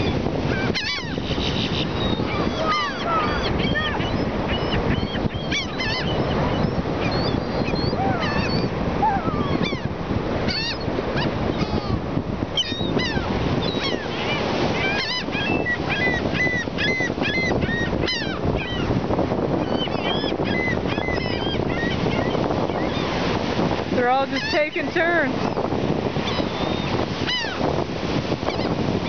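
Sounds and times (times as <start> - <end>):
gulls calling: 0.0 - 27.7, 28.3 - 29.0
surf rushing: 0.0 - 29.0.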